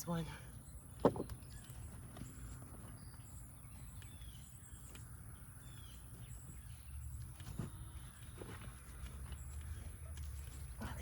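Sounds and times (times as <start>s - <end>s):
hands scraping and rustling soil: 5.8s - 11.0s.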